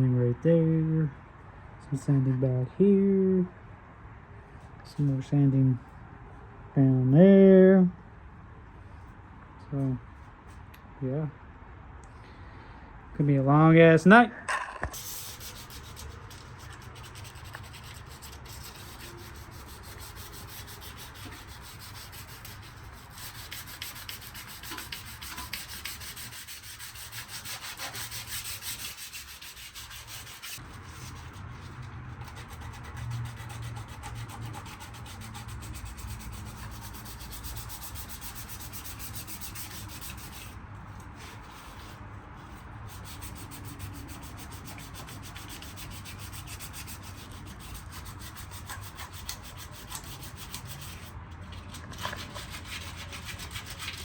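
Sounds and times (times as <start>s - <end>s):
sanding sheet metal: 15.0s - 40.6s, 41.2s - 51.2s, 52.0s - 54.0s.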